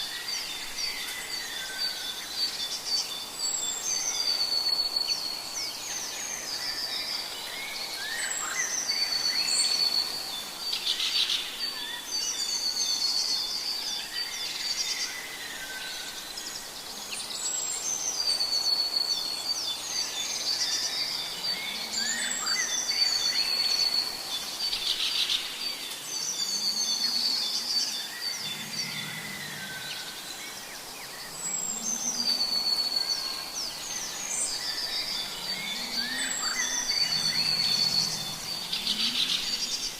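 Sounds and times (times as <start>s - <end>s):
birds calling and chirping: 0.0s - 39.9s
faint low bird calls: 20.2s - 39.9s.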